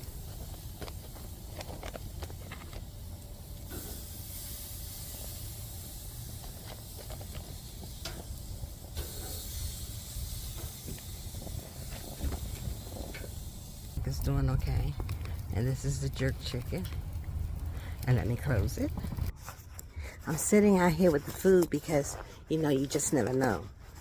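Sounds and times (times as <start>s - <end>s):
chicken wings sizzling on a grill: 0.0s - 19.3s
low rumble: 7.5s - 19.4s.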